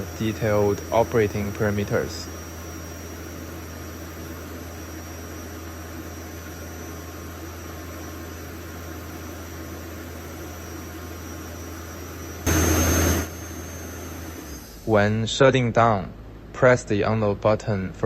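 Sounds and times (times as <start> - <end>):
compressor hiss: 0.0 - 5.2, 10.3 - 15.2
air compressor humming: 0.0 - 15.3.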